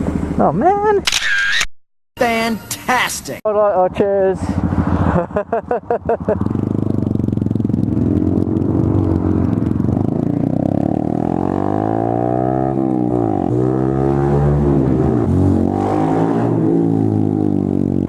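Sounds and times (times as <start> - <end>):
motorcycle engine revving: 4.5 - 18.0.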